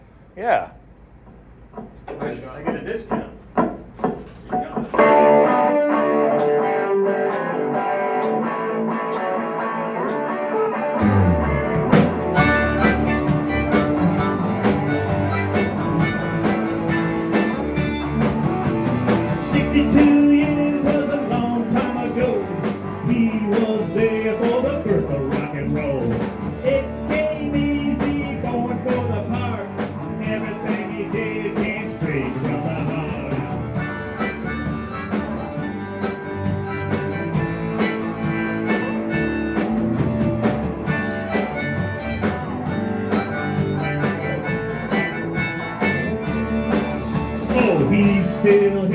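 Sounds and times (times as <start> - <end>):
drums: 0.0 - 48.9
guitar: 0.0 - 48.9
bass: 10.8 - 48.9.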